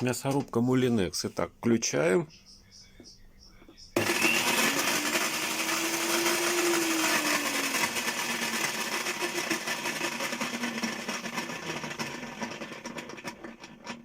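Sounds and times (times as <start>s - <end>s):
electric meat grinder grating: 4.0s - 14.0s.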